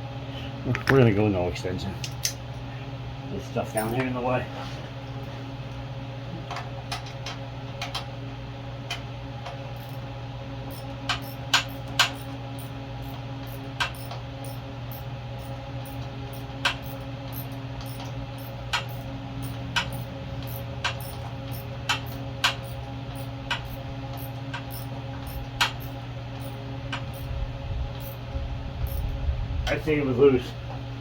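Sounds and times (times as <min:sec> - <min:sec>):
steady low hum: 0:00.0 - 0:31.0
ratchet clicking: 0:09.8 - 0:10.0, 0:10.7 - 0:27.3, 0:28.0 - 0:28.2, 0:28.9 - 0:29.1.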